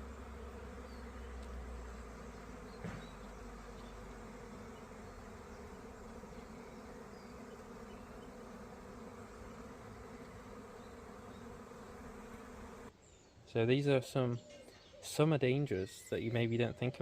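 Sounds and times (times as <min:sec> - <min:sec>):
bees buzzing: 0:00.0 - 0:12.9
brief knock: 0:02.8 - 0:03.2.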